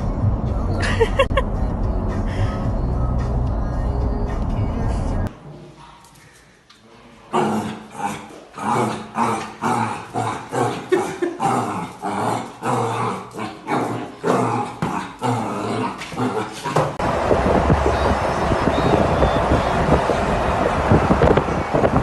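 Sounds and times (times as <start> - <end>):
dog growly calls: 7.3 - 17.0.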